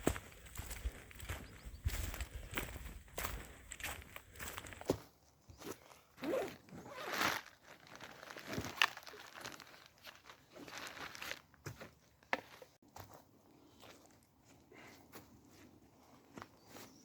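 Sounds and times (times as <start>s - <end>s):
rustling and crinkling handling: 5.8s - 12.8s.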